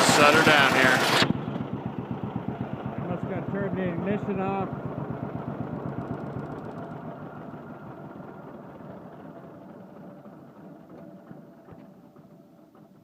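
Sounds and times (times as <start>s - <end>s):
two-cylinder engine running down: 0.0s - 13.0s.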